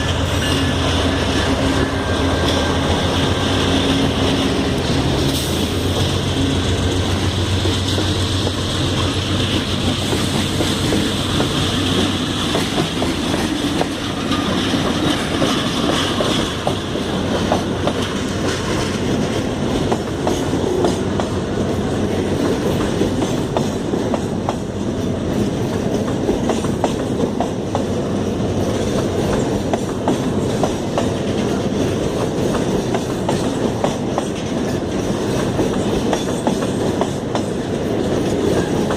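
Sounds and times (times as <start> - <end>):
train engine drone with whine: 0.0 - 38.9
wheels clicking over rail joints: 7.2 - 38.9.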